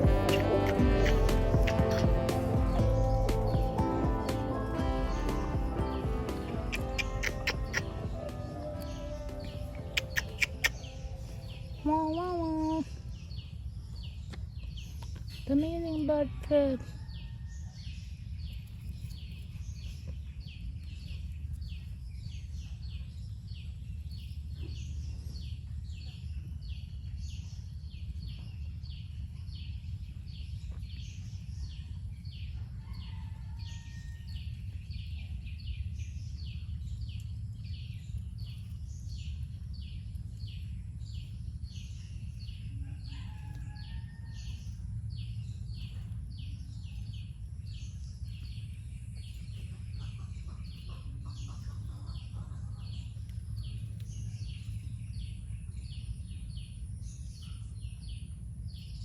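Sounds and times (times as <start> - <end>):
soft lower bird call: 0.0 - 13.0
bird chirping: 0.0 - 16.8
low background rumble: 0.0 - 59.0.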